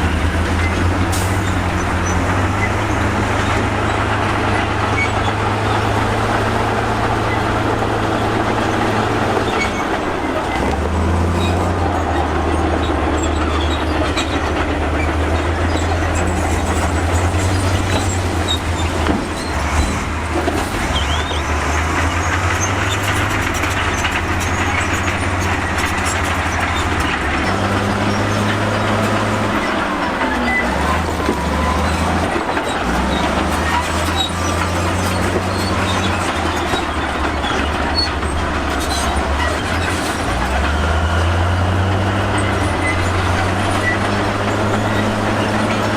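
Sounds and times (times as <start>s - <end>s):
diesel engine under load: 0.0s - 45.9s
steel tracks clanking and squealing: 0.0s - 45.9s.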